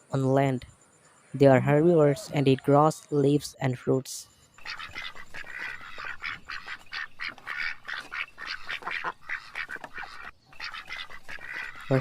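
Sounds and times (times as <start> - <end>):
ducks quacking: 4.6 - 12.0.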